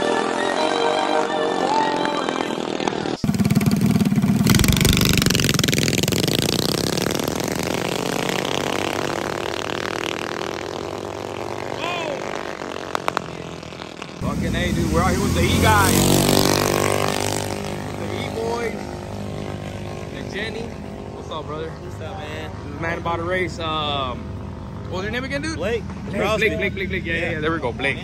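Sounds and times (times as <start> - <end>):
minibike engine revving: 2.3 - 25.5.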